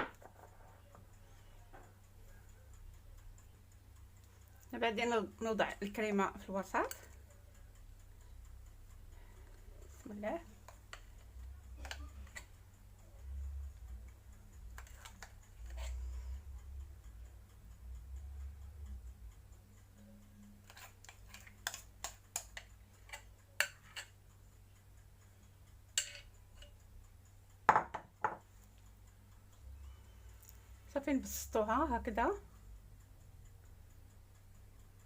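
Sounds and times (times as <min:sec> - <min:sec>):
spoon tapping against dish: 0:09.9 - 0:12.5, 0:14.7 - 0:15.9, 0:20.6 - 0:24.2, 0:26.0 - 0:26.7, 0:27.6 - 0:28.5.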